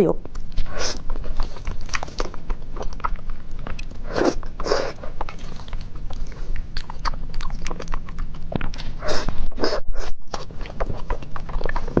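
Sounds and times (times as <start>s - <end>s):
wet chewing clicks: 0.2s - 12.0s
person eating noodles: 3.7s - 12.0s.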